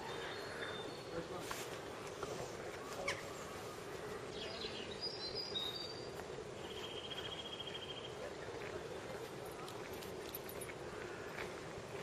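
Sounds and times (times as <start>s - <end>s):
small birds chirping and trilling: 0.0s - 8.4s
outdoor background noise: 0.0s - 12.0s.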